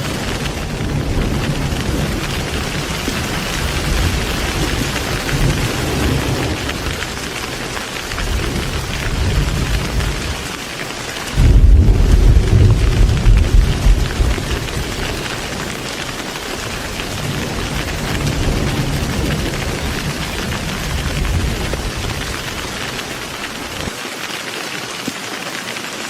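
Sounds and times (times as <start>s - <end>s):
thunder rumbling: 0.0s - 23.9s
heavy rain: 0.0s - 26.0s
loud thunder boom: 11.4s - 15.4s.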